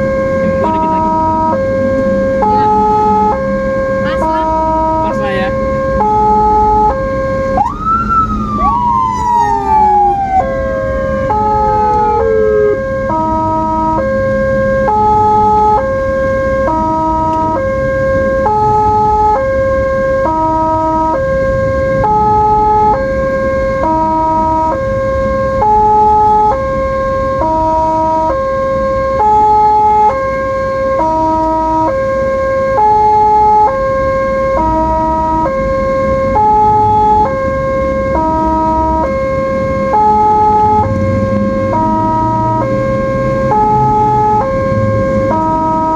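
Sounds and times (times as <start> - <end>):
ambulance siren: 0.0 - 45.9
road and engine noise: 0.0 - 45.9.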